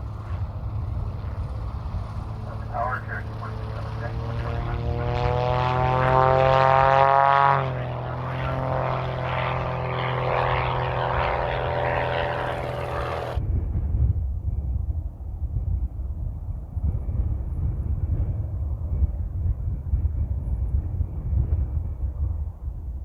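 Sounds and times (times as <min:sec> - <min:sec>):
low rumble: 0:00.0 - 0:23.0
propeller airliner droning past: 0:00.0 - 0:23.0.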